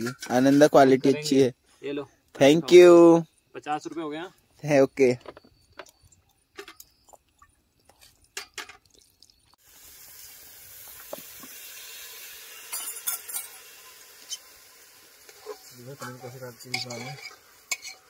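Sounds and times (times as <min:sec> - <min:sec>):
food frying in a pan: 0:09.3 - 0:18.0
utensil clinking against pan: 0:15.5 - 0:18.0.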